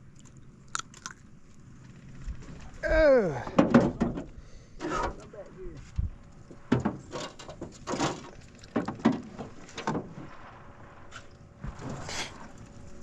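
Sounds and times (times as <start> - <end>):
knocks against a canoe: 3.5 - 5.0, 6.6 - 10.3.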